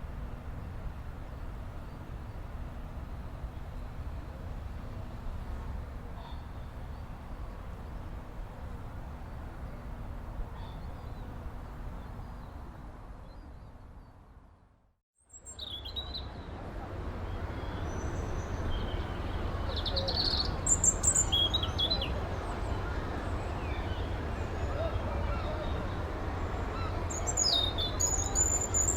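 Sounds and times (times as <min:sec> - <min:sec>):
birds chirping: 0:17.2 - 0:28.9.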